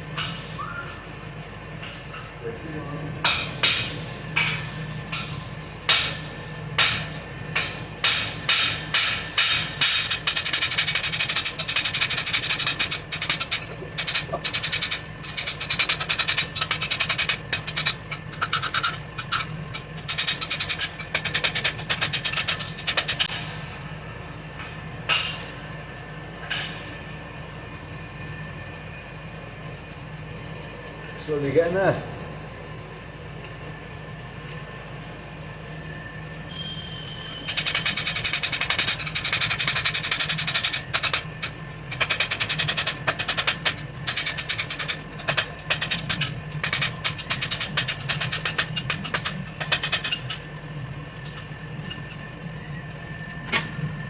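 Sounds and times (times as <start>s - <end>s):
steady low hum: 0.0s - 54.0s
hammer striking steel on anvil: 3.2s - 11.5s.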